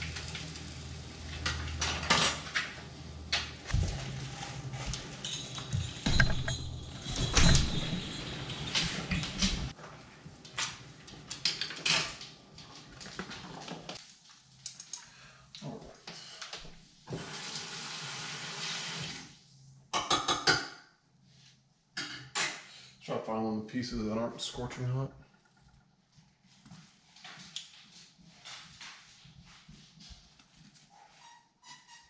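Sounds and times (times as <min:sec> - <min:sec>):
utensils clinking against dishes: 0:04.0 - 0:09.7.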